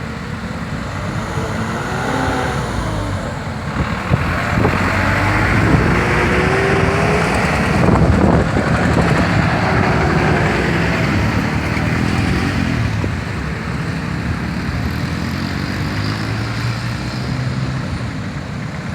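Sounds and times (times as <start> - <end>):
short rising tone: 0.0 - 10.9
engines and road noise rumbling: 0.0 - 18.9.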